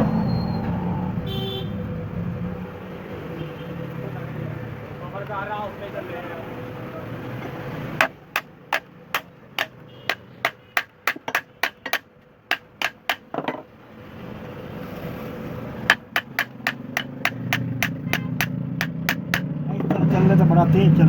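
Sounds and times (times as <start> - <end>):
hammer tapping: 8.0 - 13.7, 15.9 - 20.0.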